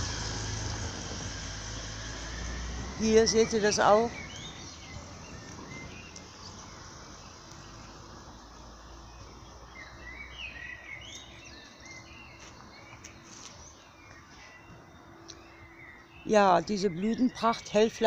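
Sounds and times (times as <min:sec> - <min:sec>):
songbirds chirping and twittering: 0:00.0 - 0:18.0.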